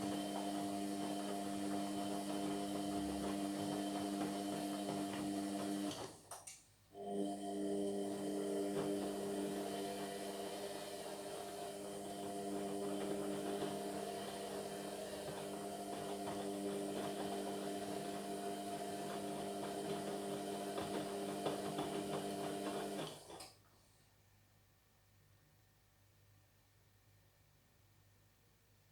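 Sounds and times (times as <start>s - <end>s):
washing machine drum motor humming: 0.0s - 6.1s, 7.0s - 23.4s.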